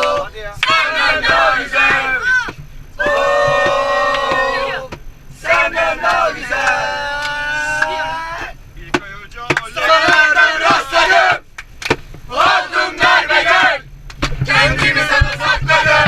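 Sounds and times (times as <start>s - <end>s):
group of people shouting: 0.0s - 8.5s, 9.8s - 11.4s.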